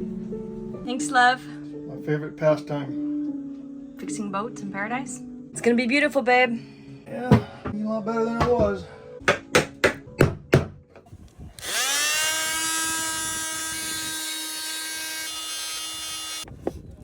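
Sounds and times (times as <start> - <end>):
power tool whining: 11.6 - 16.5.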